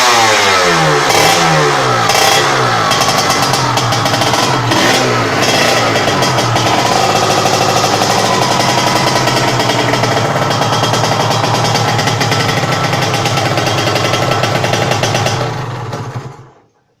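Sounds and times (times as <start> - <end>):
motorcycle engine running: 0.0 - 16.8.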